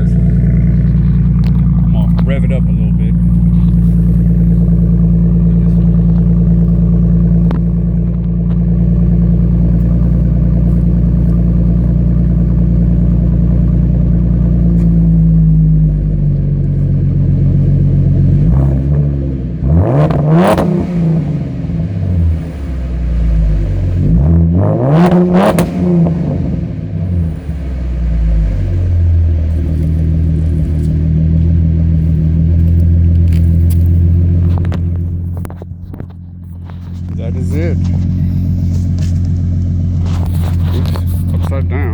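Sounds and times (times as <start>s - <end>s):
car engine idling and revving: 0.0s - 41.9s.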